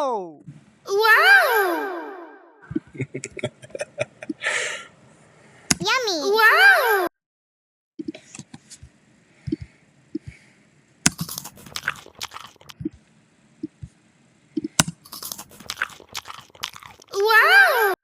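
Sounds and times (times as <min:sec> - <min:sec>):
person chewing crunchy food: 0:11.1 - 0:12.8, 0:15.0 - 0:17.3.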